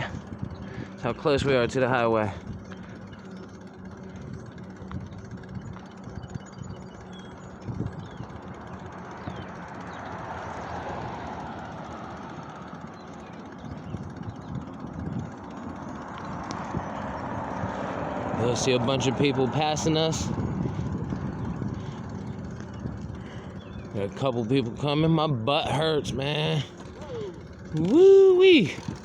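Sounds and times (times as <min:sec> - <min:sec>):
highway traffic rushing past: 0:08.3 - 0:29.0
vehicle passing: 0:08.6 - 0:14.0, 0:15.0 - 0:29.0.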